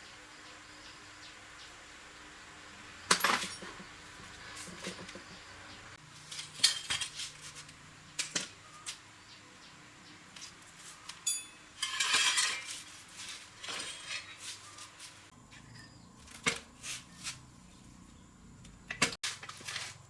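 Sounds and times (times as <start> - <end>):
metal tools clinking: 3.1 - 3.8, 6.3 - 7.4, 11.2 - 12.9, 13.6 - 14.8
scraping rustle: 6.1 - 7.8, 10.4 - 17.9, 19.2 - 20.0
ringing metal clink: 11.2 - 12.6.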